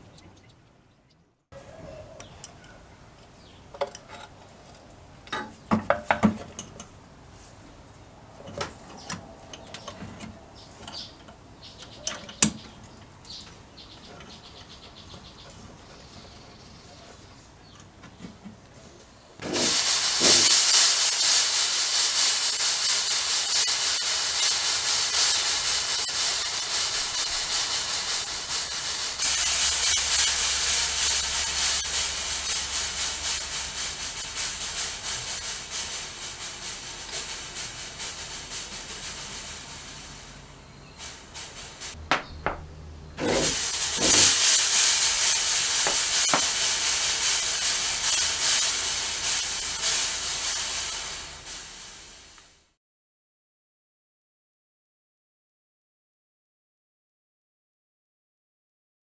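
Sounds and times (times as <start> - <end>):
fog machine hissing: 19.4 - 52.6.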